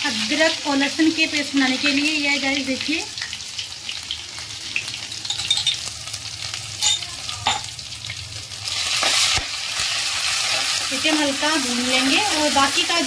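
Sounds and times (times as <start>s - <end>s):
paste sizzling in hot oil: 8.4s - 13.0s.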